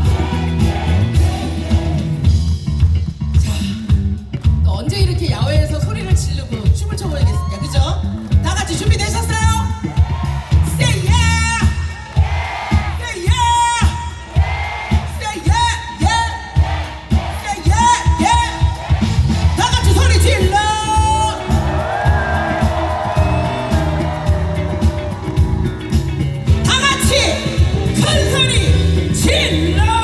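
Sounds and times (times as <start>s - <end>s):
lead vocal singing: 0.0s - 2.2s
live band playing pop: 0.0s - 4.6s, 8.3s - 30.0s
steady drum beat: 0.0s - 30.0s.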